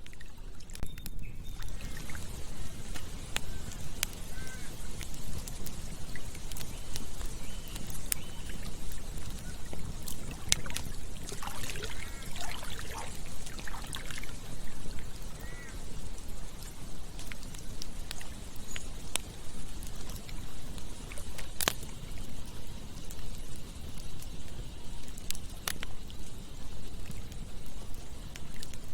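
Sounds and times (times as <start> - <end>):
campfire crackling and popping: 0.0 - 28.9
water gurgling: 1.6 - 28.9
stream rushing: 10.4 - 14.4.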